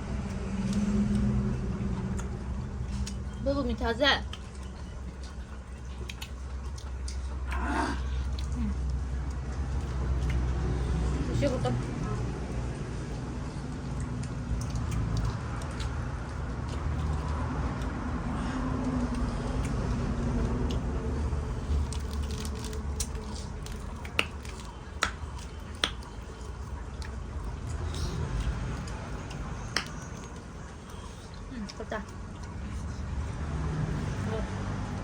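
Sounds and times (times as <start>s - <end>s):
steady low rumble: 0.0s - 35.0s
person eating: 5.1s - 11.0s.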